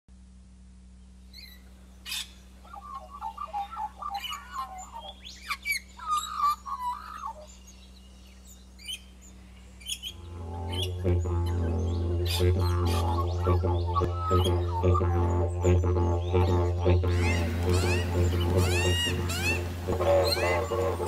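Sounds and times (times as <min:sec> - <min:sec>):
faint low hum: 0:00.1 - 0:21.0
high bird chirps: 0:01.3 - 0:09.1, 0:17.1 - 0:21.0
magpies carolling: 0:01.4 - 0:07.7, 0:09.8 - 0:21.0
didgeridoo music: 0:10.1 - 0:21.0.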